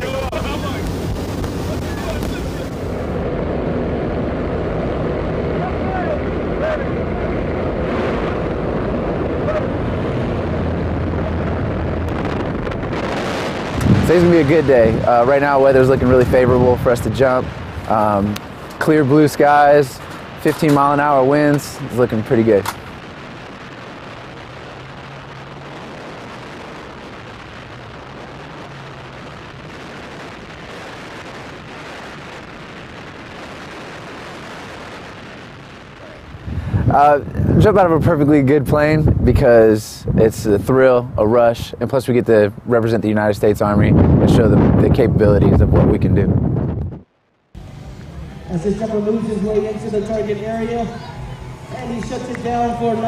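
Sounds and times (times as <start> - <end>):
low drone: 0.0 - 31.7, 47.6 - 53.0
low hum: 0.0 - 37.6, 46.6 - 53.0
propeller aircraft rumble: 0.0 - 53.0
rushing wind: 0.0 - 53.0.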